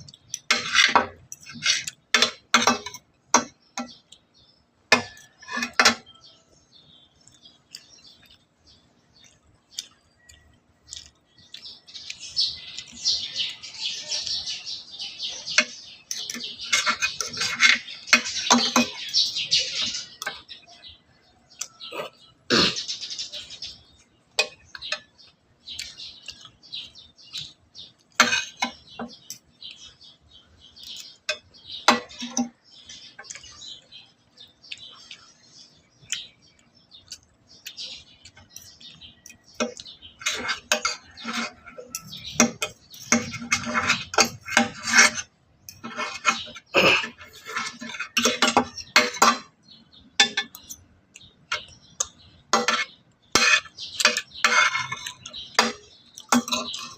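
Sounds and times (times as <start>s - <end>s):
utensils clinking on a plate: 0.0s - 4.1s, 4.9s - 6.2s, 12.8s - 20.8s, 24.4s - 25.2s, 28.1s - 29.9s, 30.8s - 33.8s, 37.7s - 49.6s, 50.2s - 56.9s
close-up eating noises: 0.0s - 56.9s.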